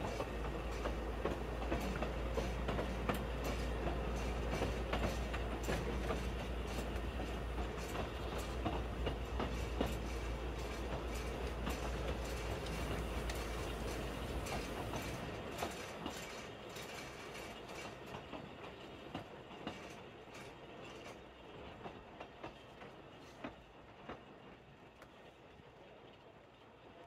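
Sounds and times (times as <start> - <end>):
wheels clicking over rail joints: 0.0 - 24.2
train rumble: 0.0 - 26.0.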